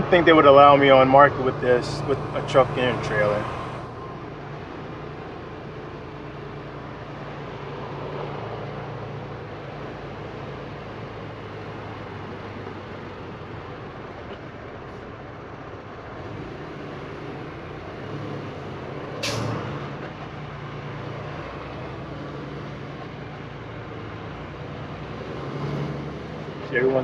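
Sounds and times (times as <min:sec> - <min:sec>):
road noise: 0:00.0 - 0:27.0
truck engine drone: 0:00.0 - 0:27.0
air brakes hiss: 0:19.2 - 0:19.6.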